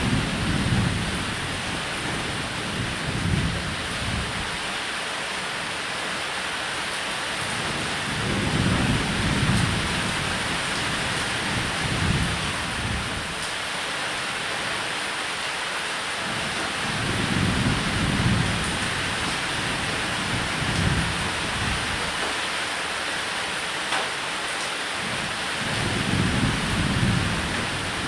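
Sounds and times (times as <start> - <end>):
thunder rolling: 0.0 - 4.6
heavy rain on a roof: 0.0 - 28.0.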